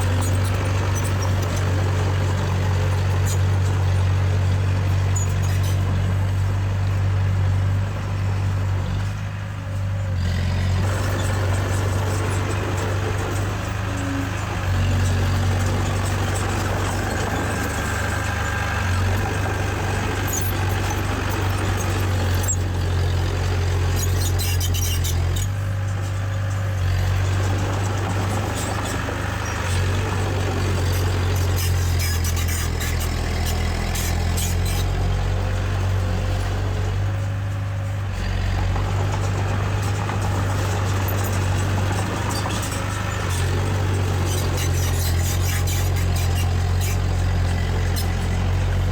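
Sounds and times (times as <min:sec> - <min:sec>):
diesel engine droning: 0:00.0 - 0:48.9
metallic squeaks and clinks: 0:23.6 - 0:27.8, 0:30.8 - 0:35.2, 0:39.9 - 0:48.6.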